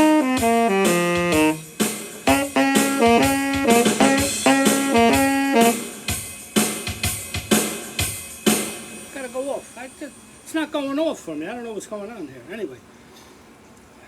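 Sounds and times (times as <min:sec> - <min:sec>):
saxophone melody: 0:00.0 - 0:06.1
drum kit beat: 0:00.0 - 0:09.6.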